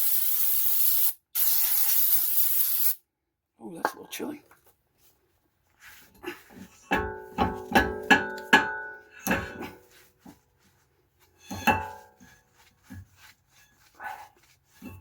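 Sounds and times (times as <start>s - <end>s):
metal-on-metal strikes ringing: 7.0s - 9.5s.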